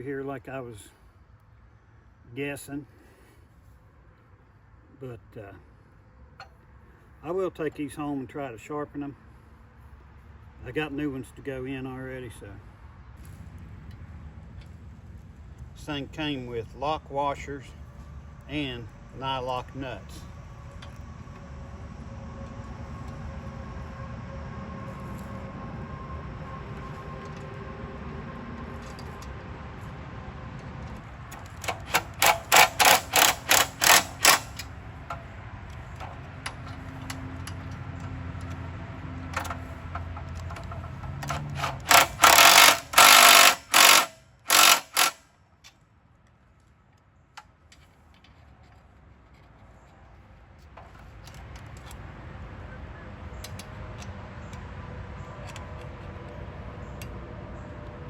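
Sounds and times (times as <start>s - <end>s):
power tool bursts on bolts: 31.3s - 35.3s, 39.4s - 45.3s.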